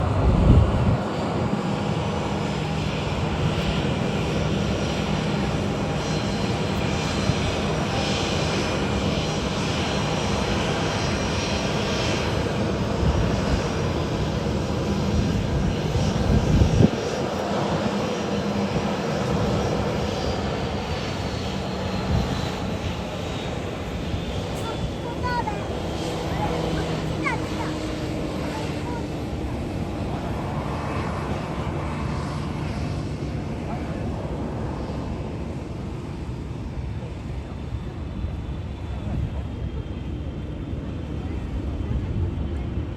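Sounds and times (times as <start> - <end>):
jet engines roaring: 0.0 - 42.9.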